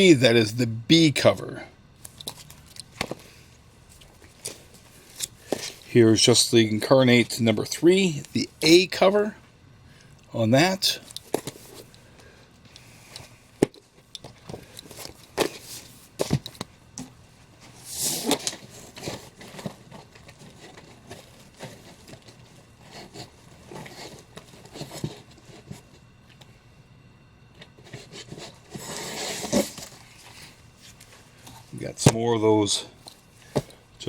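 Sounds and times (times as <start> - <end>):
paper covers sliding and rubbing: 17.6 - 25.9, 27.8 - 31.8.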